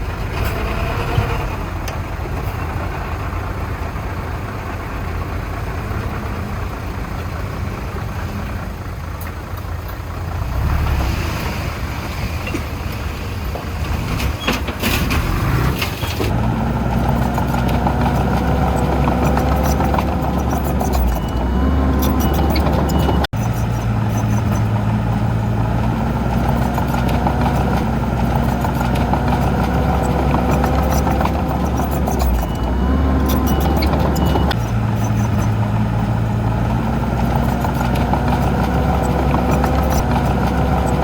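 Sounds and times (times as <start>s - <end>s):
heavy diesel machinery running: 0.0s - 41.0s
sharp knocks and clicks: 17.0s - 21.4s, 26.3s - 35.6s.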